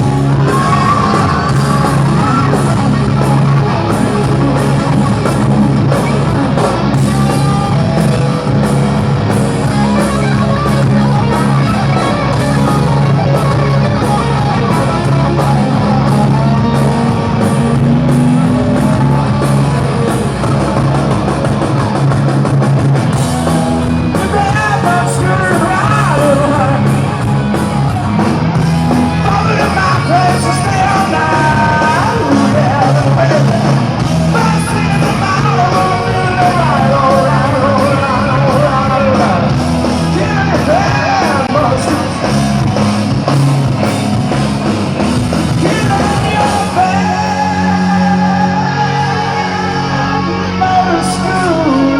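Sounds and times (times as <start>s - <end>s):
person singing: 0.0s - 3.6s, 24.1s - 27.1s, 29.1s - 42.1s, 45.6s - 51.9s
distorted electric guitar: 0.0s - 51.9s
drums: 0.0s - 51.9s.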